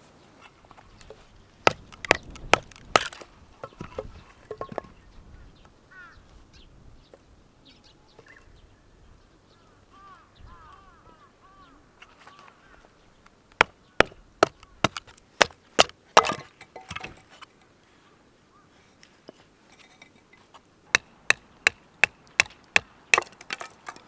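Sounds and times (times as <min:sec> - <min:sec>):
firewood being chopped: 0:01.6 - 0:04.9, 0:13.5 - 0:17.2, 0:20.9 - 0:24.0.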